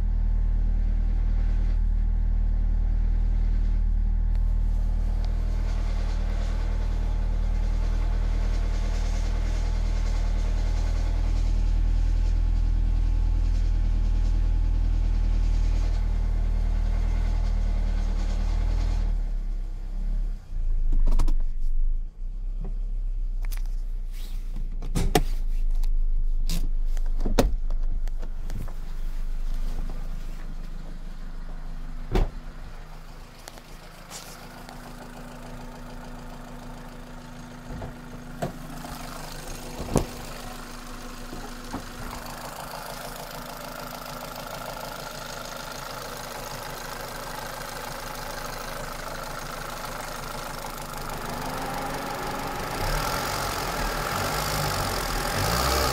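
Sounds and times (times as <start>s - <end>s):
car engine running: 0.0s - 55.9s
sharp engine knocks: 31.5s - 32.4s, 41.2s - 42.2s.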